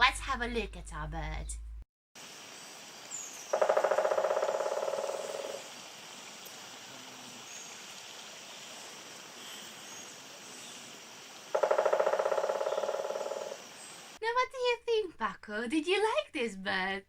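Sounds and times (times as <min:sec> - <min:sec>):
woodpecker drumming on tree: 0:03.4 - 0:05.8, 0:11.2 - 0:14.1.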